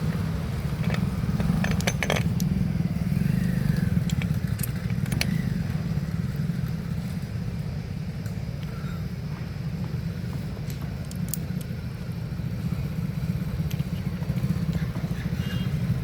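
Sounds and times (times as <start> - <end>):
motorcycle engine idling: 0.0 - 16.0
light metallic clicks: 3.4 - 5.6, 10.6 - 11.8.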